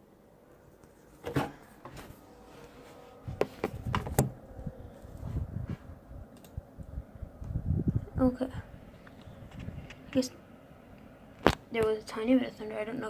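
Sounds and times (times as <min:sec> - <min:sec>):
low rumbling scuffle: 0:01.3 - 0:06.1
microphone handling knocks and rubs: 0:03.3 - 0:04.4.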